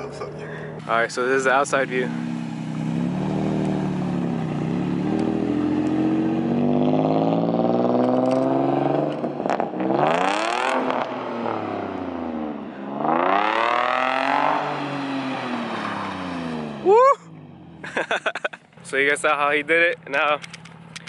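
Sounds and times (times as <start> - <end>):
car engine revving hard: 1.9 - 16.8.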